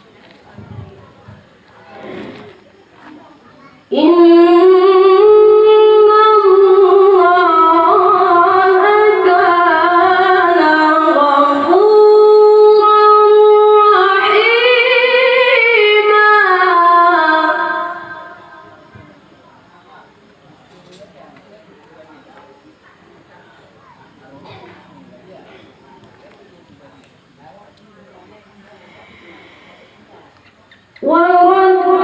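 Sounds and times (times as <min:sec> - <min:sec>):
boy reciting in melodic chant: 0:02.9 - 0:20.1, 0:30.9 - 0:32.0.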